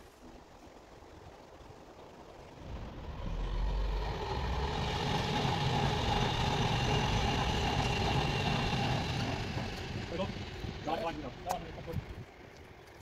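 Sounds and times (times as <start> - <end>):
steady whine: 2.2 - 12.7
heavy vehicle engine rumble: 2.6 - 12.4.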